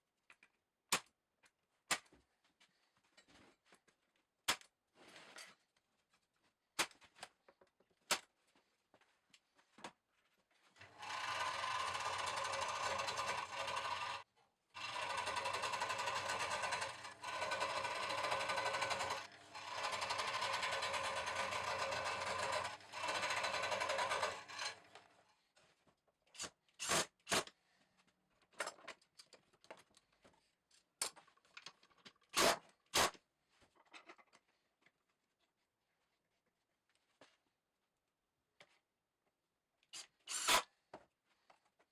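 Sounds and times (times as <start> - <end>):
electric power tool running: 10.8 - 14.2, 14.8 - 25.0.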